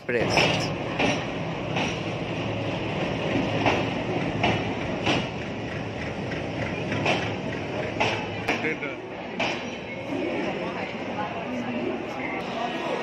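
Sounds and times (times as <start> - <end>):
train wheels rumbling: 0.0 - 11.5
diesel locomotive engine humming: 0.0 - 13.0
wheels clacking over rail joints: 0.2 - 2.2, 3.2 - 9.8.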